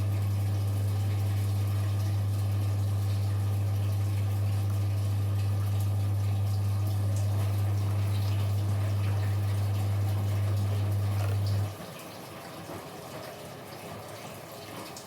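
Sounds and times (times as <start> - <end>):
low electrical hum: 0.0 - 11.8
washing machine running water: 0.0 - 15.0.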